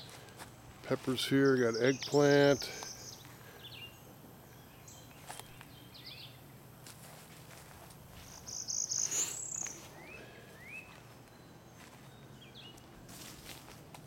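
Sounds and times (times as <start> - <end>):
faint outdoor background: 0.0 - 14.0
birds chirping and whistling: 1.6 - 6.4, 8.2 - 12.9
bird trill: 1.7 - 5.2, 8.2 - 12.7.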